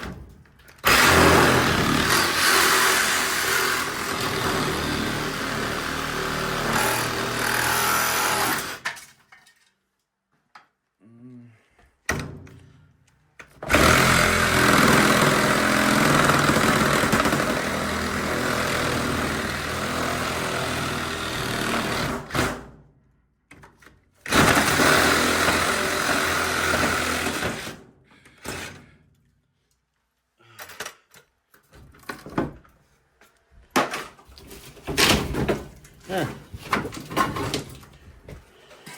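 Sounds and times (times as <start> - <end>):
power tool running under load: 0.8 - 8.8, 13.7 - 22.4, 24.3 - 27.7.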